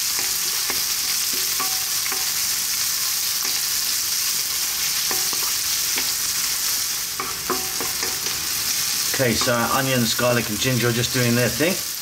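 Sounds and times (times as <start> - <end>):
food sizzling in hot oil: 0.0 - 12.0
wooden spoon knocking pan: 0.2 - 2.4, 5.0 - 6.2, 7.2 - 8.4.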